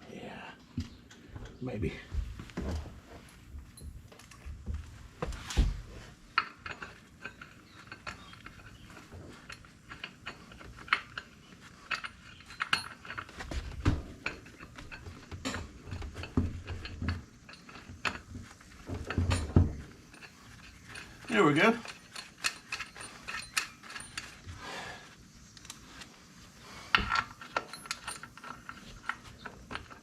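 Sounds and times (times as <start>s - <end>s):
metal clinks and clunks: 3.6s - 4.6s, 5.3s - 24.8s, 26.9s - 30.0s.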